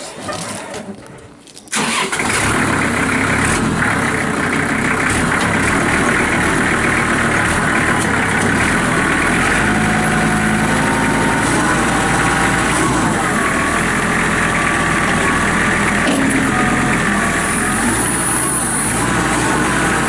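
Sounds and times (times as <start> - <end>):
diesel tractor engine running: 1.7 - 20.0.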